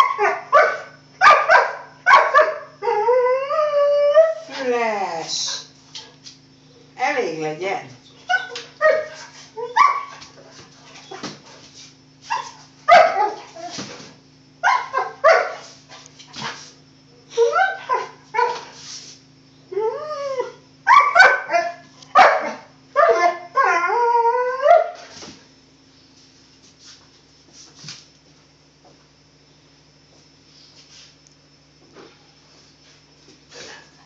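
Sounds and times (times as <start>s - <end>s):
dog play-barking and yipping: 0.0s - 3.0s, 8.2s - 11.6s, 12.2s - 14.0s, 14.6s - 16.6s, 17.3s - 18.8s, 20.9s - 24.0s
dog wavering cries: 0.0s - 4.6s, 8.2s - 10.2s, 12.3s - 13.8s, 14.6s - 15.6s, 17.3s - 18.6s, 19.7s - 25.1s.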